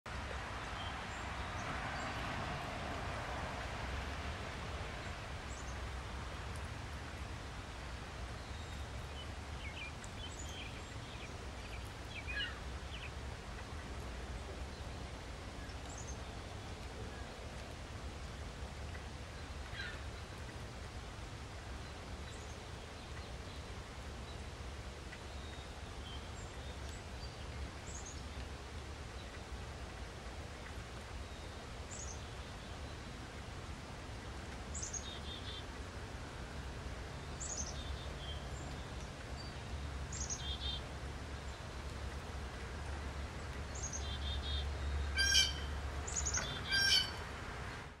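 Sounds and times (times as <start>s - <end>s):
birds chirping: 43.2s - 47.2s.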